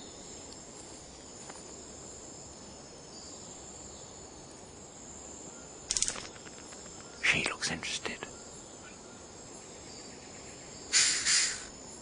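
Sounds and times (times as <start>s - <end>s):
jungle insects droning: 0.0s - 12.0s.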